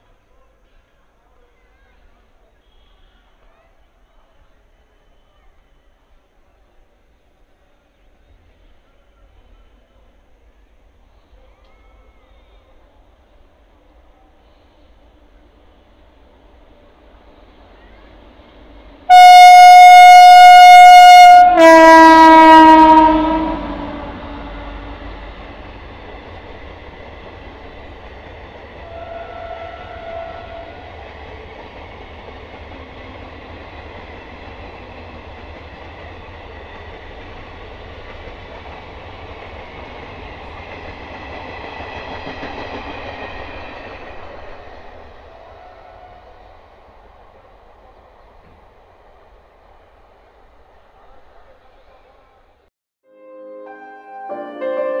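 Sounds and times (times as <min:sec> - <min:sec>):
train coaches rumbling on rails: 0:00.0 - 0:52.7
locomotive horn blasts: 0:19.1 - 0:25.4, 0:28.8 - 0:30.9.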